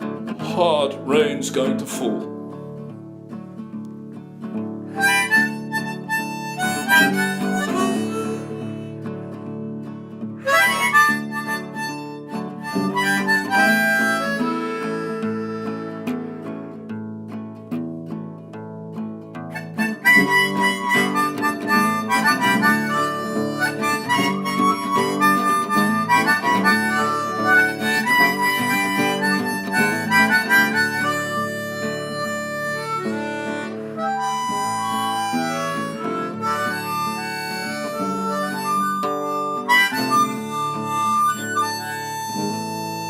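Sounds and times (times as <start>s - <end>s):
harmonica melody: 0.0s - 17.4s, 19.4s - 43.0s
guitar chords: 0.0s - 43.0s.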